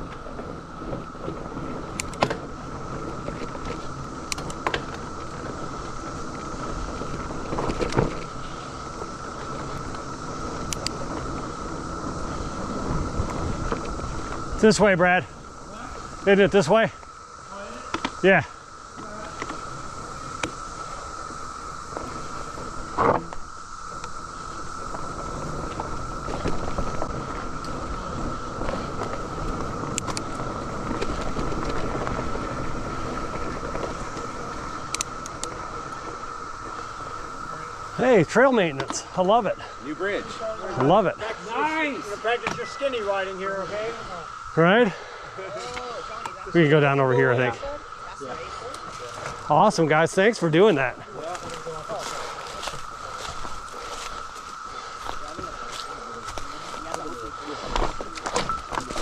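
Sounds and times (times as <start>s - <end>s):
bike rattling over bumps: 0.0s - 59.0s
cicadas droning: 0.0s - 59.0s
tyres rumbling on dirt: 0.0s - 59.0s
wind: 0.0s - 59.0s.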